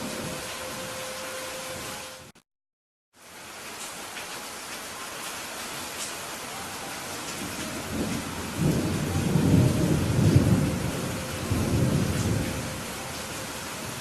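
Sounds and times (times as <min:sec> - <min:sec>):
steady rain: 0:00.0 - 0:02.4, 0:03.1 - 0:14.0
thunder rumbling: 0:07.1 - 0:14.0.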